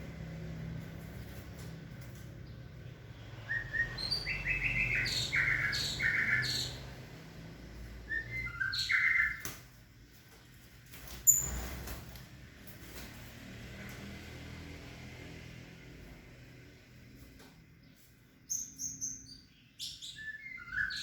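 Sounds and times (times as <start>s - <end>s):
bird calling: 3.3s - 6.8s, 8.1s - 9.4s.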